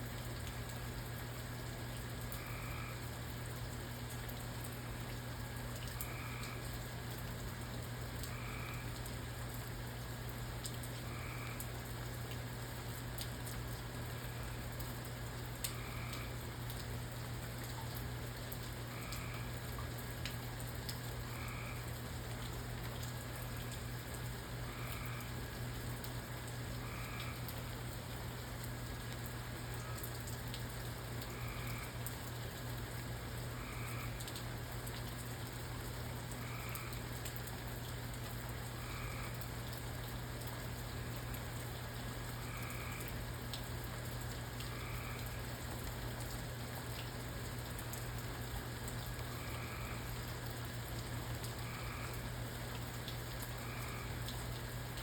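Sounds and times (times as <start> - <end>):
low steady hum: 0.0 - 55.0
steady rain: 0.0 - 55.0
frog croaking: 2.3 - 3.1, 18.9 - 19.6, 21.2 - 22.0, 24.7 - 25.4, 31.2 - 32.0, 36.4 - 37.0, 38.7 - 39.4, 44.6 - 45.4, 49.0 - 50.2, 51.4 - 52.3.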